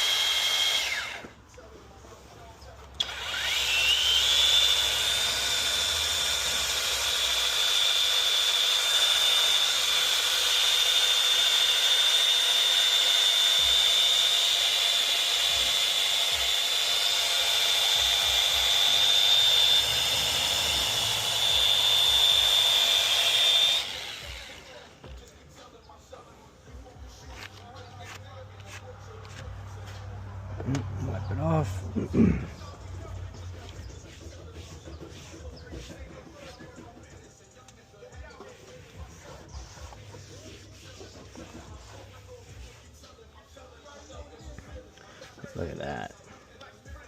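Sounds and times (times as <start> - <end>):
rotary polisher whine: 0.0 - 1.4, 3.0 - 25.3.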